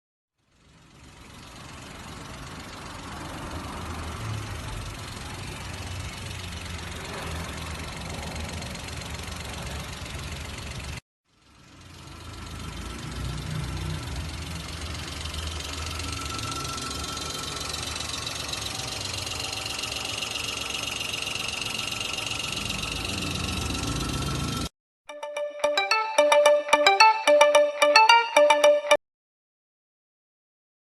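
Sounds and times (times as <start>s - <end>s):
car engine idling: 0.4s - 24.7s
steady high tone: 14.6s - 29.0s.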